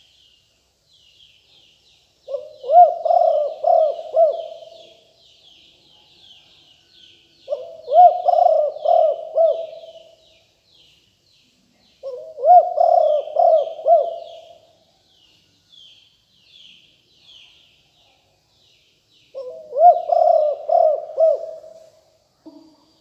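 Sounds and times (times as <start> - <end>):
small birds chirping: 0.0 - 23.0
dove cooing: 2.3 - 5.1, 7.5 - 10.2, 12.0 - 14.7, 19.4 - 21.9.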